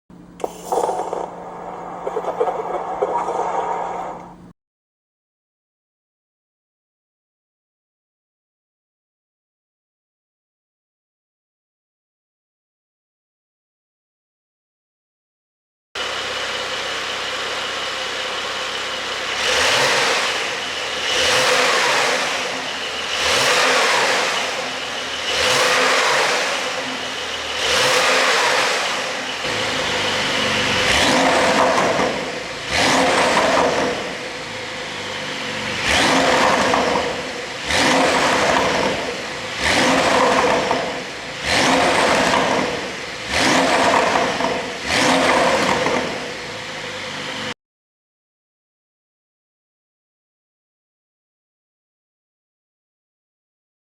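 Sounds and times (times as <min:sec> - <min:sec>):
car engine revving: 0:00.3 - 0:04.5, 0:16.0 - 0:47.5.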